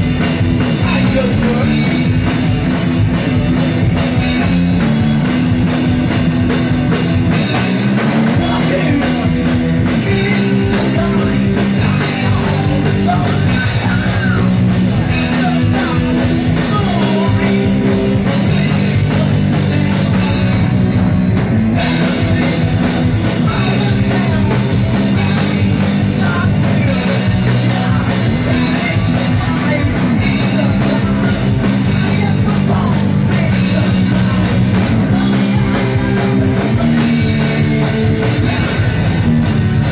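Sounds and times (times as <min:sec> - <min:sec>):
bass guitar: 0:00.0 - 0:39.9
distorted guitar: 0:00.0 - 0:39.9
drums: 0:00.0 - 0:39.9
person singing: 0:00.1 - 0:02.5, 0:08.0 - 0:21.1, 0:21.8 - 0:39.9.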